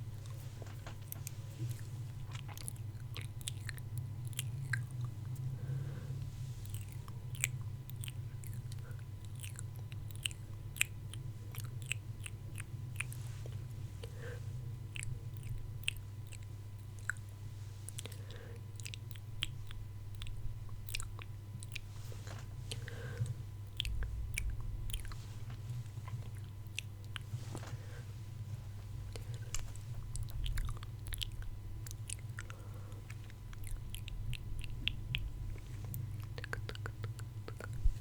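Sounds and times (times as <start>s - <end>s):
low hum: 0.0s - 38.0s
wet mouth clicks and smacks: 29.1s - 37.8s.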